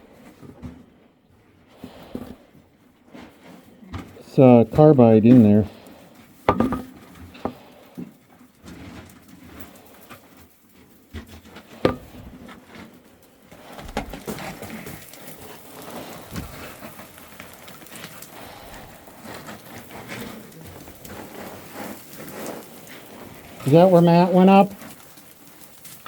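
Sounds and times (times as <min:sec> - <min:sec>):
footsteps on gravel and rock: 0:10.8 - 0:26.0.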